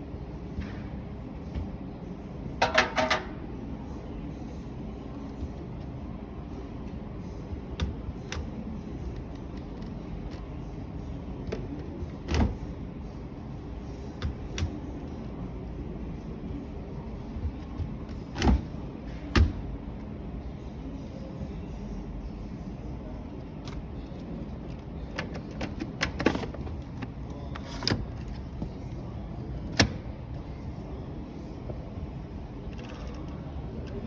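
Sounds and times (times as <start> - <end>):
steady background hum: 0.0 - 34.0
washing machine doors clicking and knocking: 2.6 - 3.4.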